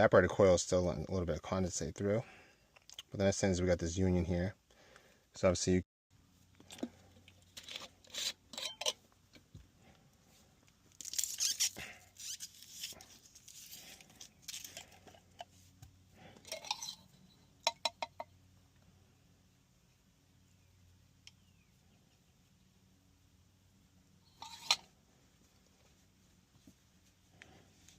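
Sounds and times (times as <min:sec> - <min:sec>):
faint low hum: 0:00.0 - 0:27.9
hands rustling and scraping plastic: 0:10.4 - 0:17.0.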